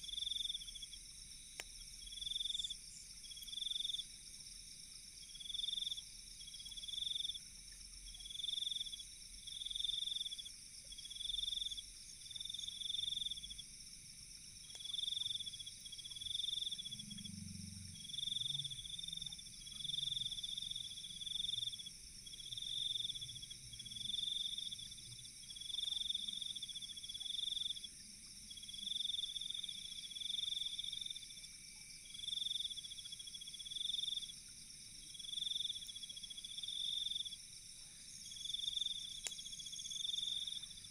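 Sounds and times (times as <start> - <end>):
pulsed insect chirping: 38.1 - 40.9.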